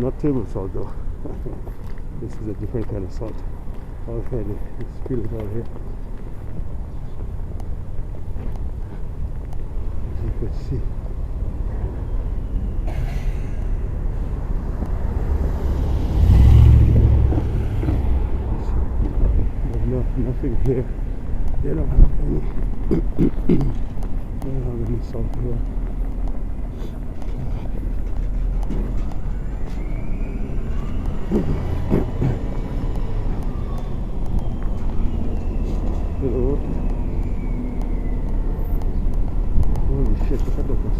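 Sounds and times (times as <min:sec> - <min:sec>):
motor vehicle passing: 0:08.7 - 0:21.6, 0:22.4 - 0:40.9.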